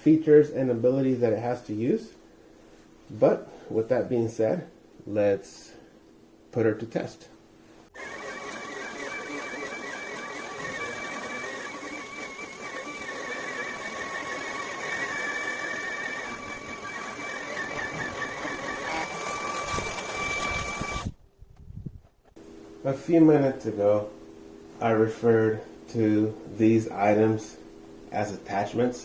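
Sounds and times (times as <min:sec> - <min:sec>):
stick vacuum motor whine: 0:08.0 - 0:21.2.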